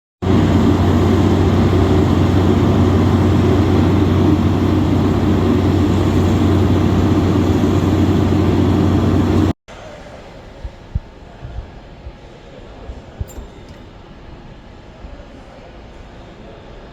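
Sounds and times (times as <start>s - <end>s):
jet engines rumbling: 0.2s - 9.6s.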